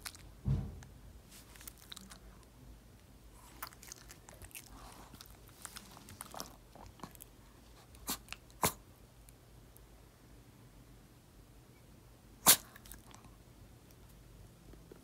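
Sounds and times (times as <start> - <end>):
crunchy chewing and biting: 3.4 - 7.3.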